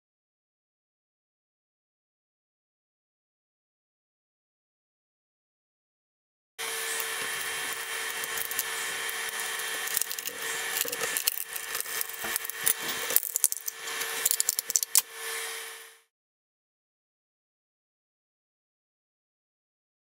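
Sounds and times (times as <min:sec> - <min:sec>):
printer fans humming: 0:06.6 - 0:15.9
sharp clicks and cracks: 0:07.0 - 0:15.1.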